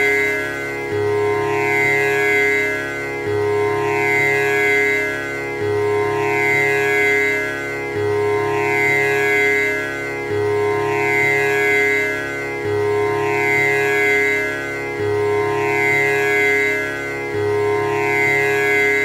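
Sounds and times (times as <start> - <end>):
tanpura drone: 0.0 - 19.0.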